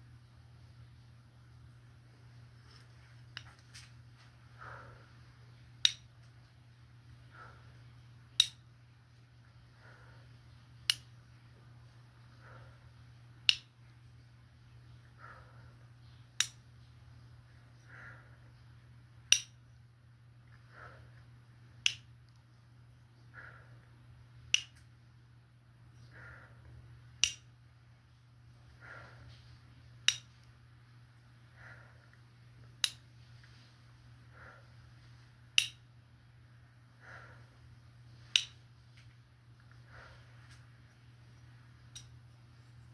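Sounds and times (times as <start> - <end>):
steady low hum: 0.0 - 42.9
sharp snaps: 5.8 - 6.6, 8.3 - 8.7, 10.8 - 11.3, 13.4 - 13.9, 16.3 - 16.7, 19.2 - 19.7, 21.8 - 22.5, 24.4 - 25.0, 27.1 - 27.6, 30.0 - 30.6, 32.6 - 33.6, 35.5 - 35.9, 38.2 - 41.0, 41.8 - 42.4.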